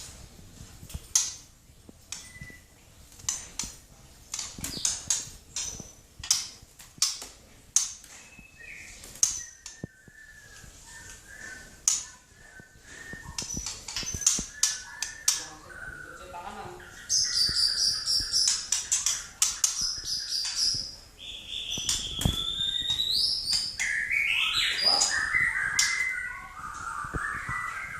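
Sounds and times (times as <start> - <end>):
young bird chirping and clicking: 2.1 - 2.6, 4.3 - 10.3, 11.8 - 12.3, 13.1 - 15.9, 16.9 - 27.9
thin high bird chirps: 2.1 - 2.7, 8.1 - 27.9.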